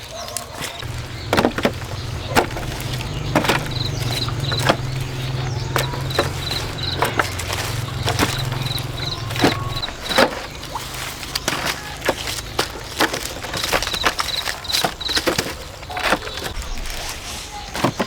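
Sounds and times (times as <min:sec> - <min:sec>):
sharp knocks: 0:00.8 - 0:10.6
low motor hum: 0:00.8 - 0:13.3.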